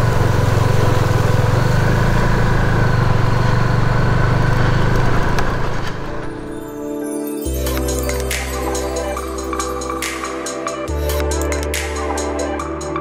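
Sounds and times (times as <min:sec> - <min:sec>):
motorcycle engine running: 0:00.0 - 0:06.6.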